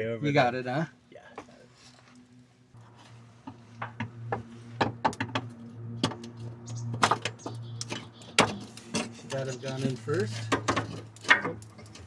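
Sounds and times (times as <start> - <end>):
steady low hum: 0.0 - 12.0
metal knocks and clunks: 10.4 - 11.9.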